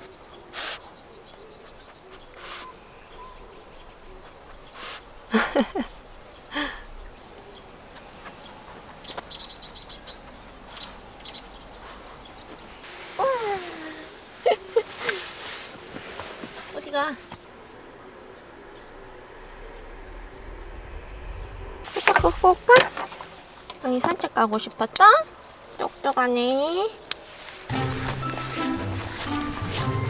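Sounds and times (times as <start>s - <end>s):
small birds chirping: 0.0s - 30.0s
low falling sound: 17.8s - 23.8s.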